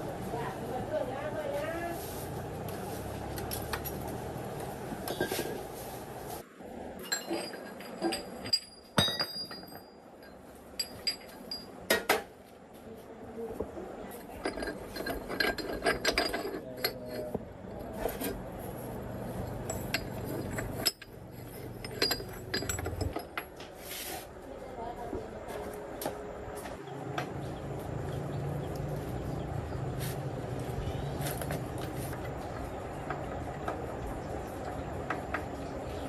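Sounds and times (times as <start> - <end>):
steel parts clinking: 7.0 - 12.2, 14.1 - 23.7.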